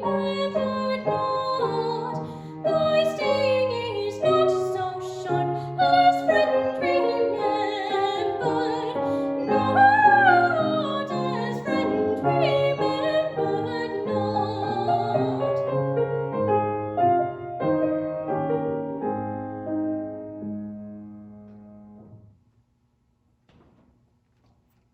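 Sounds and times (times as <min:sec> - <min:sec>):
solo voice singing with vibrato: 0:00.0 - 0:15.6
piano accompaniment: 0:00.0 - 0:22.4.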